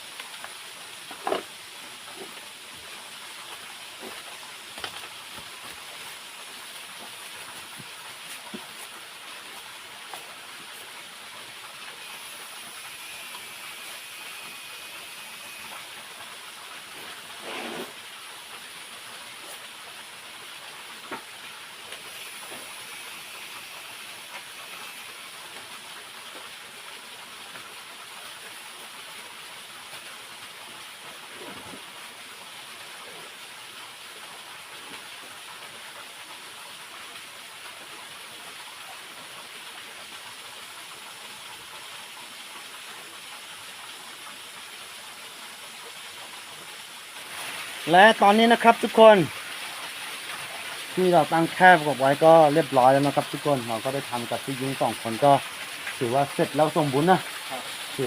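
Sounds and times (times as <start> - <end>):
rushing waterfall: 0.0 - 58.0.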